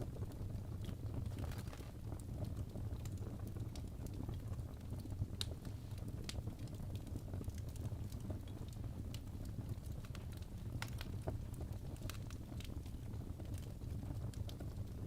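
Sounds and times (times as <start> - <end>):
fire flames rumbling: 0.0 - 15.0
logs crackling and popping: 0.0 - 15.0.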